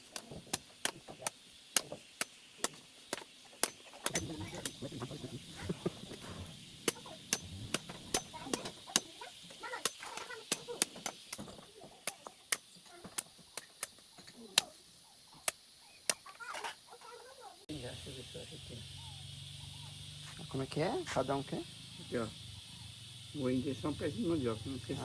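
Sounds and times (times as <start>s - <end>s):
hoe chopping coconut: 0.0s - 4.9s, 5.6s - 14.7s.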